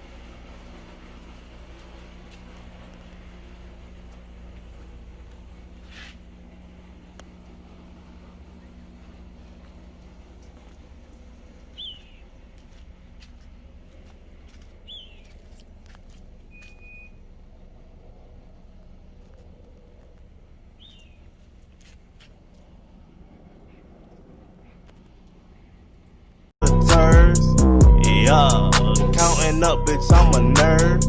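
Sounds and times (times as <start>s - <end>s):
low outdoor rumble: 0.0s - 31.0s
bird chirping: 7.4s - 17.3s, 20.6s - 21.6s.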